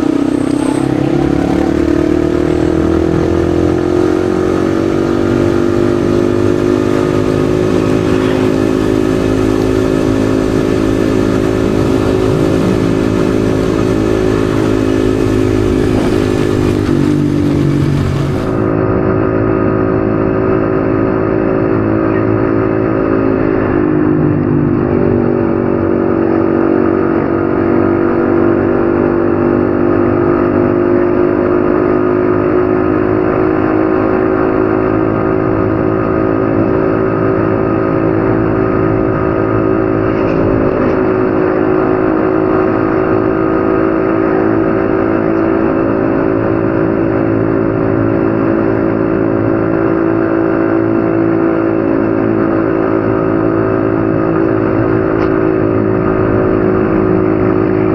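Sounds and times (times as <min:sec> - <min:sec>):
motorcycle engine cruising: 0:00.0 - 0:28.2.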